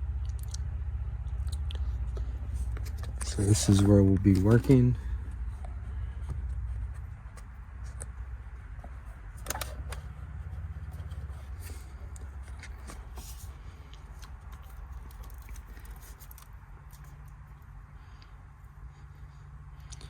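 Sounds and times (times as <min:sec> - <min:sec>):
handling rustling: 0:02.1 - 0:17.4.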